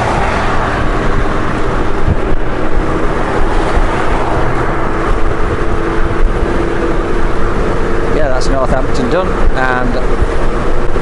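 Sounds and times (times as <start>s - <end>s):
motorcycle engine hum: 0.0s - 11.0s
wind and road noise: 0.0s - 11.0s.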